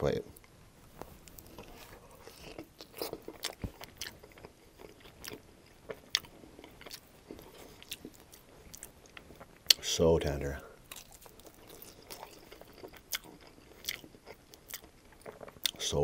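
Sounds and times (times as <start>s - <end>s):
wet chewing mouth sounds: 1.0s - 9.9s, 10.9s - 15.9s
sharp food crunches: 1.3s - 9.8s.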